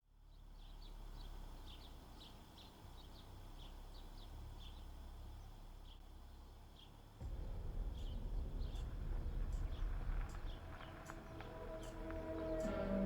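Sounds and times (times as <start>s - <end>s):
birds chirping: 6.7s - 13.0s
steady low rumble: 7.2s - 13.0s.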